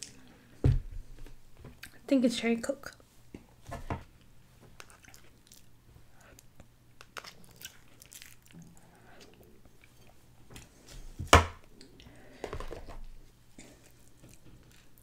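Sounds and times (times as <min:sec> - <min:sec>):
person chewing soft food: 0:04.2 - 0:10.8, 0:13.5 - 0:15.0
crispy food crackling: 0:06.9 - 0:08.9
plastic bowl set down: 0:12.4 - 0:13.0.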